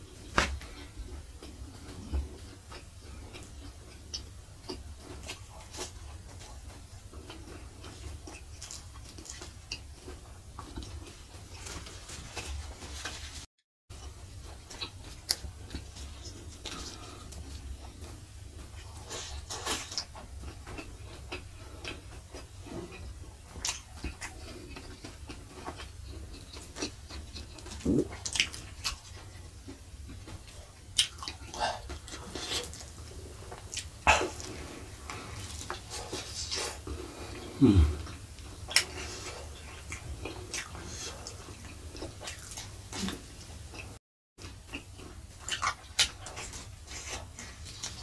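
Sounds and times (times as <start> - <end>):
wet chewing and lip smacks: 14.0 - 36.8, 38.0 - 48.0
low throat sound: 27.8 - 28.2, 37.1 - 38.2.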